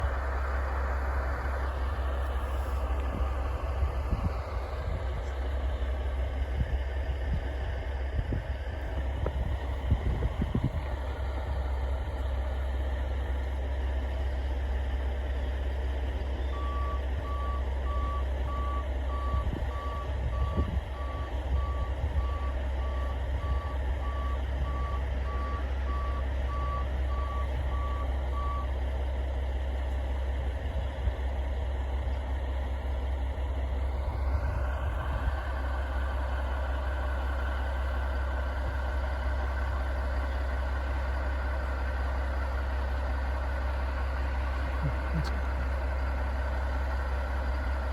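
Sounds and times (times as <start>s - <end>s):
low engine rumble: 0.0s - 47.9s.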